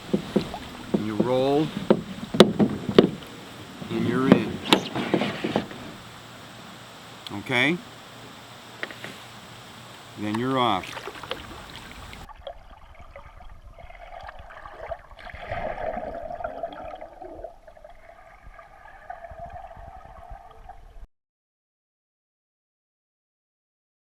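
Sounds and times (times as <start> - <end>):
water gurgling around a canoe: 0.0 - 6.0, 10.2 - 21.0.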